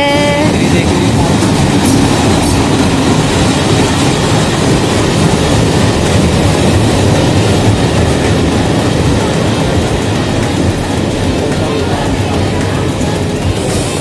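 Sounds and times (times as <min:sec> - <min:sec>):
train rolling past: 0:00.0 - 0:14.0.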